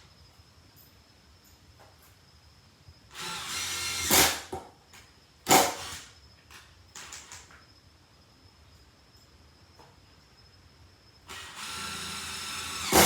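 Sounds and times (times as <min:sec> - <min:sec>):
cordless impact driver running: 0:11.3 - 0:13.0.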